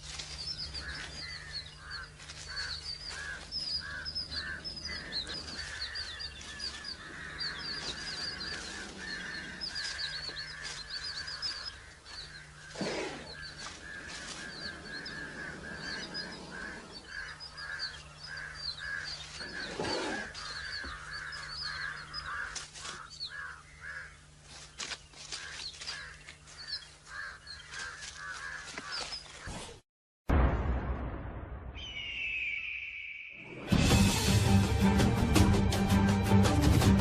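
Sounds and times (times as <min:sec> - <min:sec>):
higher bird chirps: 0:00.0 - 0:24.3, 0:31.8 - 0:33.7
birds calling: 0:00.0 - 0:29.8.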